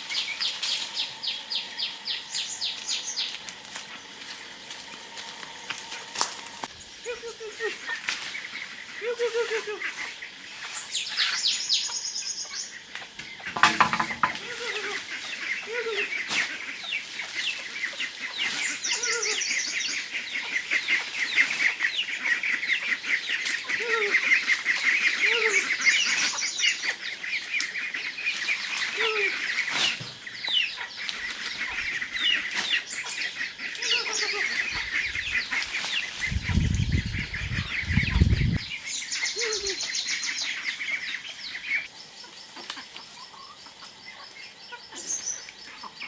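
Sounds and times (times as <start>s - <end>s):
ducks calling: 1.7s - 41.9s
loud knock: 13.6s - 14.4s.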